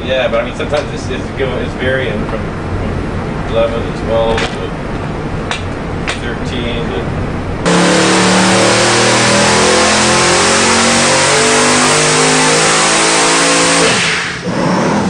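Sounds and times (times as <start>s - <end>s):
engine full-throttle pull: 7.6s - 15.0s.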